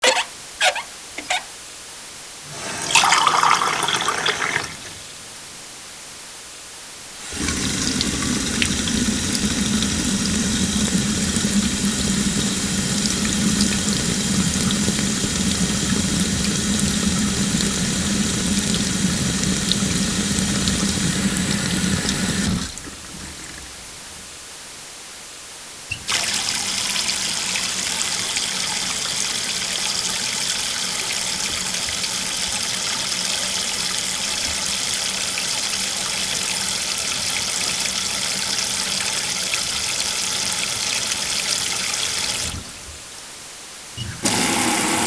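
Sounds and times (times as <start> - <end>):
tap running into sink: 7.2 - 23.6, 44.0 - 45.0.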